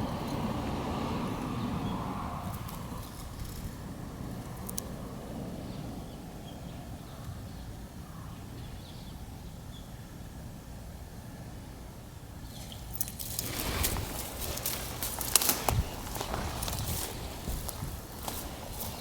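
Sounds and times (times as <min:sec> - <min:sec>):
low outdoor rumble: 0:00.0 - 0:19.0
rustling or footsteps: 0:12.5 - 0:19.0.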